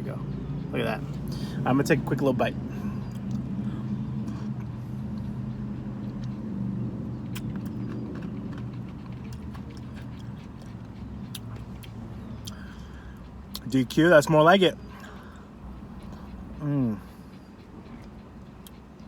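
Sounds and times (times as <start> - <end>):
car engine idling: 0.0 - 5.8, 9.9 - 18.0.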